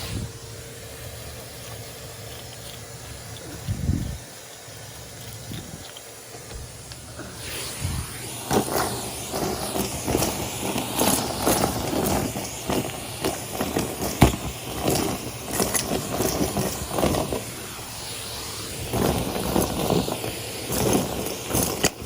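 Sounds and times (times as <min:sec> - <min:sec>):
debris rattling up hose: 0:00.0 - 0:22.0
vacuum cleaner running: 0:00.0 - 0:22.0.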